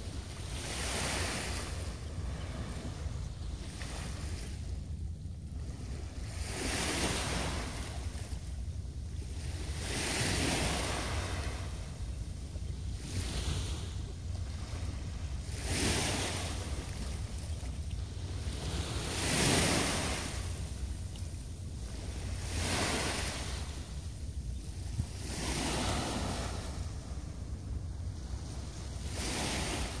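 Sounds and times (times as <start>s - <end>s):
small waves breaking: 0.0s - 4.9s, 5.5s - 8.6s, 9.2s - 12.1s, 12.9s - 30.0s
wind on microphone: 0.0s - 30.0s.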